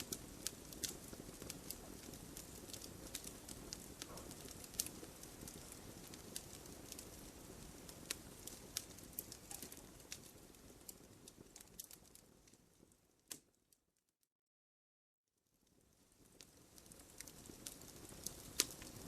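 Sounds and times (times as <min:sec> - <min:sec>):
flames rushing: 0:00.0 - 0:12.6, 0:16.1 - 0:19.0
logs crackling and popping: 0:00.0 - 0:13.6, 0:15.6 - 0:19.0.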